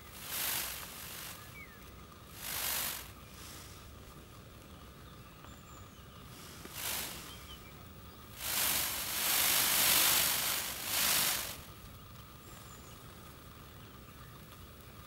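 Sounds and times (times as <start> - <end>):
peacock feathers rattling: 0.0 - 3.8, 6.6 - 12.2.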